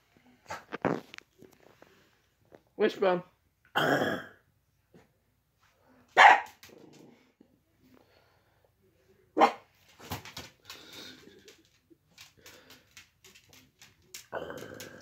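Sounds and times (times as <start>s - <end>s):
dog barking: 6.2s - 6.6s, 9.4s - 9.7s.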